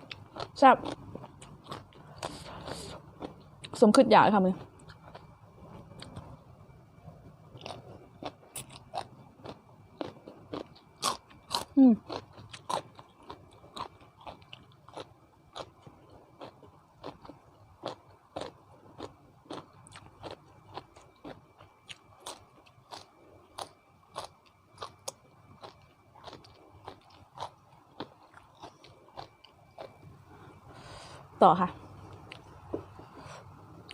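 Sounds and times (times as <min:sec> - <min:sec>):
chewing with crisp crunches: 0:00.0 - 0:06.6, 0:07.4 - 0:31.0, 0:32.0 - 0:33.9.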